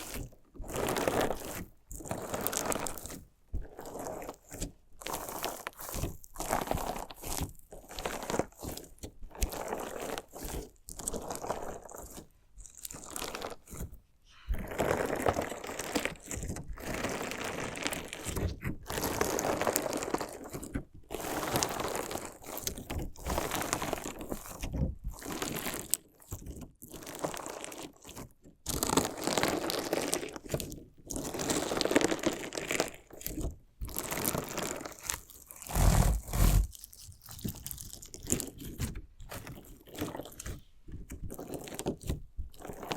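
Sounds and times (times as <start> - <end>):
crunchy slime being cut: 33.1 - 40.6.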